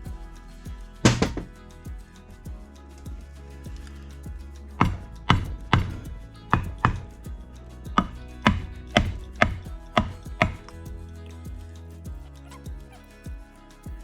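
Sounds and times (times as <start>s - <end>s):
background music: 0.0s - 14.0s
sharp metal taps: 4.8s - 7.3s, 7.9s - 10.9s.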